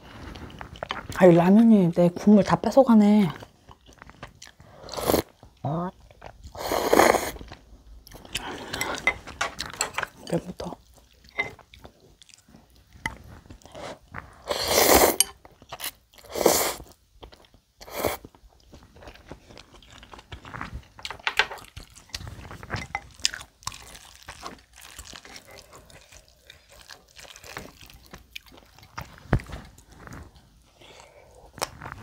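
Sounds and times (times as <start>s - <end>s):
close chewing and mouth sounds: 0.0s - 32.0s.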